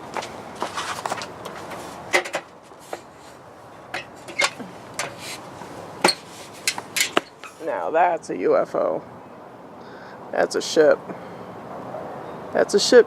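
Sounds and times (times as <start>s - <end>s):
rustles: 0.0s - 7.9s
faint background noise: 0.0s - 13.0s.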